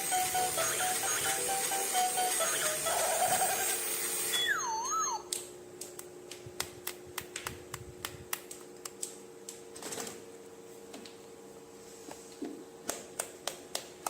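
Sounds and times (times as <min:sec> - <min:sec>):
wavering whistle tone: 0:04.3 - 0:05.3.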